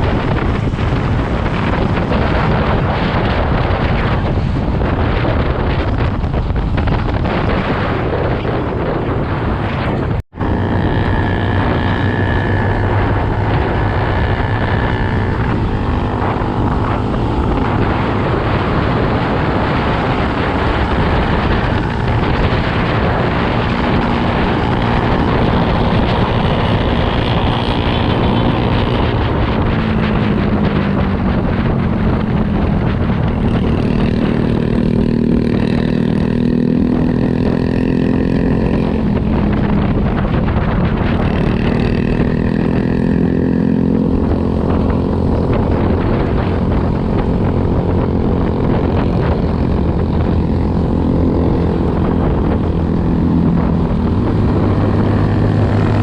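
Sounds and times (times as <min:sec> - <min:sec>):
wind rush on microphone: 0:00.0 - 0:56.0
motorbike engine running: 0:10.3 - 0:56.0.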